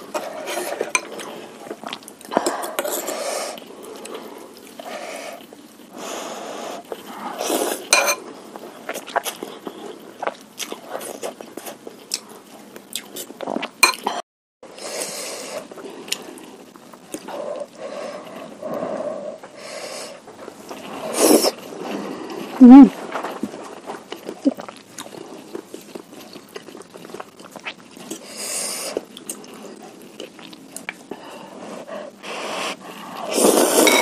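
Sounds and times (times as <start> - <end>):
close-up eating sounds: 0.0 - 34.0
cutlery clinking against a bowl: 0.5 - 1.2, 7.9 - 8.2, 13.8 - 14.1.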